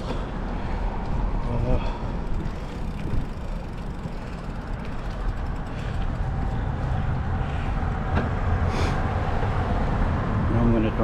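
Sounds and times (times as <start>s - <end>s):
wind rumble on microphone: 0.0s - 11.0s
bicycle rolling on wet pavement: 0.5s - 7.7s.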